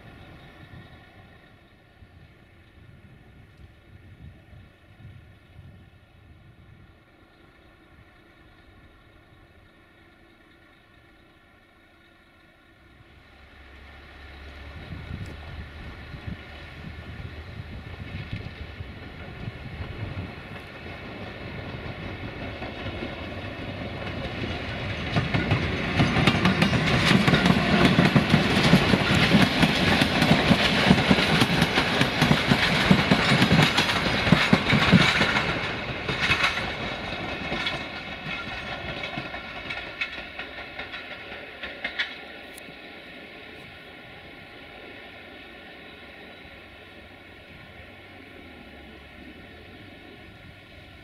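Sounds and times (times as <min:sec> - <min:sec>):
train wheels clattering over rail joints: 0:17.9 - 0:42.6.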